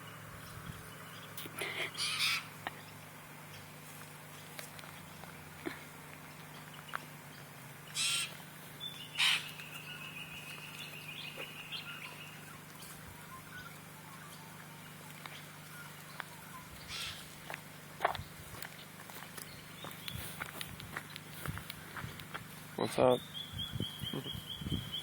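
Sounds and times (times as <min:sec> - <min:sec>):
harsh bird calls: 0:00.0 - 0:03.7, 0:06.3 - 0:17.5, 0:22.7 - 0:25.0.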